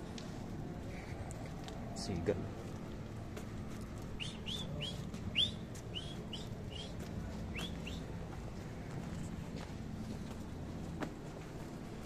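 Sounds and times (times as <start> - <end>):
bird chirping: 4.2 - 8.0.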